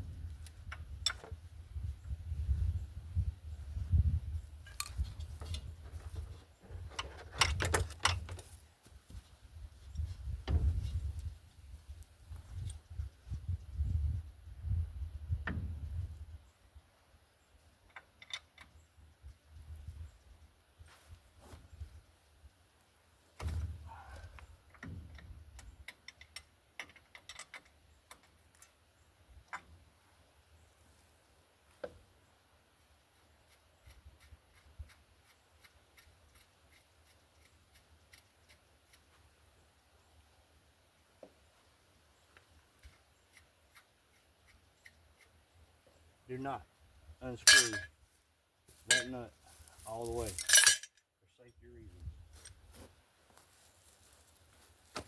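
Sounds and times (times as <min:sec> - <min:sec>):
dull thump of metal parts: 0:10.4 - 0:10.9, 0:47.5 - 0:47.9, 0:49.8 - 0:50.9
hand tools clinking on metal: 0:47.4 - 0:47.9, 0:48.9 - 0:51.0.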